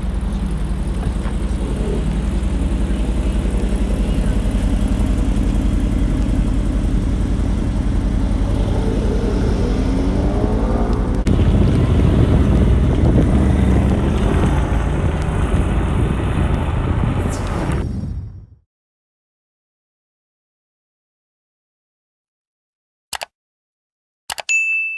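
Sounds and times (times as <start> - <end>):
car engine exhaust rumble: 0.0 - 17.8.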